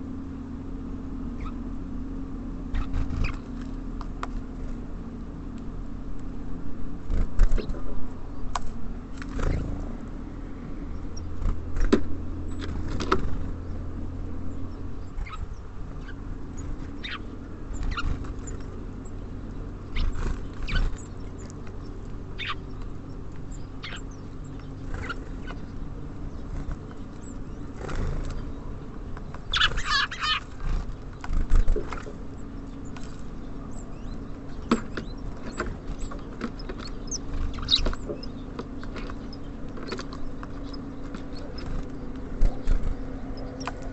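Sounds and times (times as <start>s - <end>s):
low hum of city traffic: 0.0s - 43.9s
birds pecking and tapping: 2.7s - 4.9s, 8.5s - 10.2s, 11.0s - 43.9s
wing flutters: 2.7s - 4.9s, 7.0s - 7.9s, 8.6s - 10.1s, 11.2s - 13.6s, 15.1s - 28.5s, 29.2s - 43.9s.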